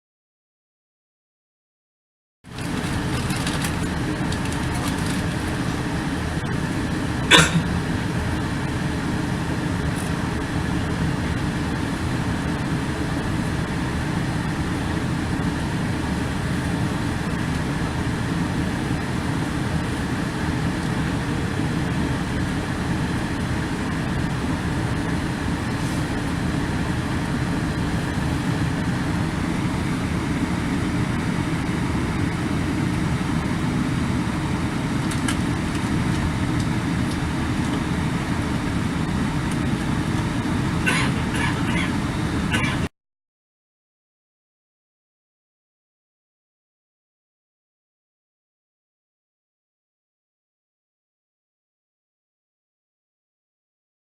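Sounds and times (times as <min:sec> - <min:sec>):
electric train rumbling: 0:02.5 - 0:42.9.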